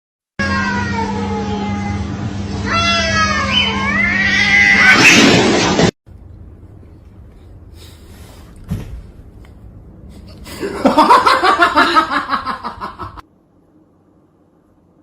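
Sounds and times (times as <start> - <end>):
cat yowling: 2.6 - 5.1.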